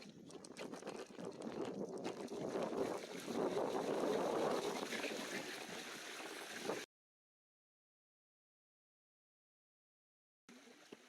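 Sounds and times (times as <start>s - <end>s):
wind rushing on microphone: 0.2s - 5.8s.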